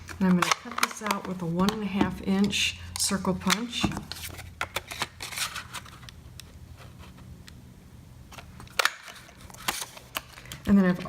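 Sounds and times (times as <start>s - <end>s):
paper rustling: 4.0s - 6.1s, 8.3s - 10.6s.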